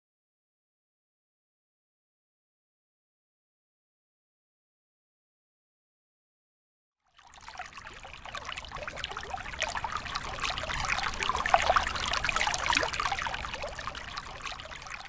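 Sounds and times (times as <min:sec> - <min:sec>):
bubbling trickling water: 0:07.2 - 0:15.0.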